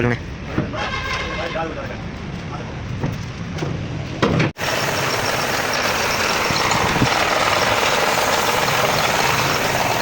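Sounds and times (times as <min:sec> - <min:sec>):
engine running steadily: 0:04.6 - 0:10.0.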